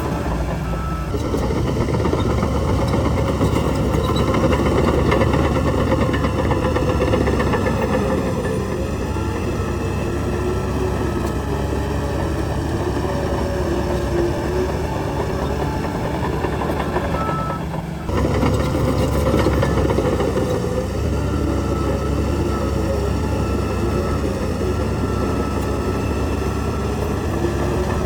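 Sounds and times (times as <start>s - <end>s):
heavy diesel engine running: 0.0s - 28.0s.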